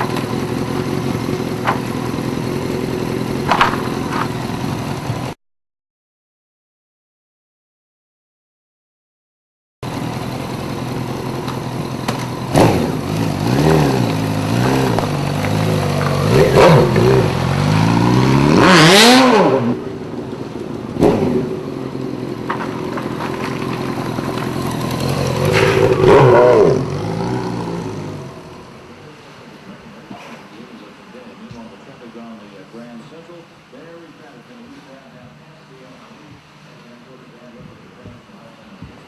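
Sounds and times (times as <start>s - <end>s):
motorcycle engine revving: 0.0s - 5.4s, 9.8s - 29.0s
sharp knocks: 3.5s - 4.3s.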